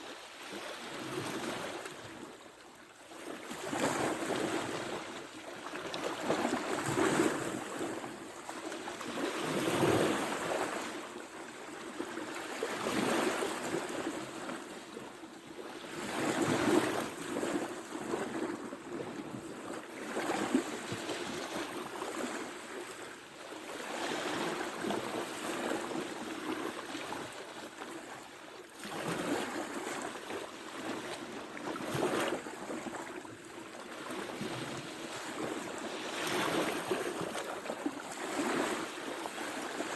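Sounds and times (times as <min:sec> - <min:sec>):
ocean waves breaking: 0:34.0 - 0:39.9.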